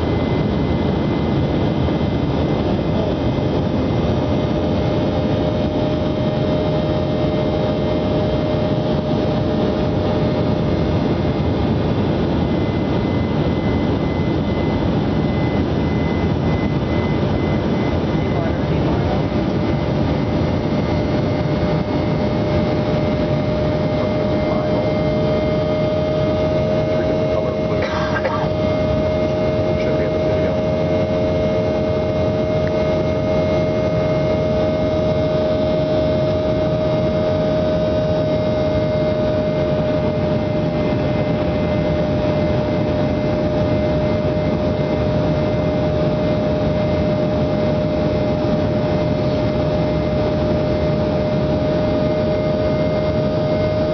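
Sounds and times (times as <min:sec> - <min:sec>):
aircraft engine droning in cabin: 0:00.0 - 0:53.9.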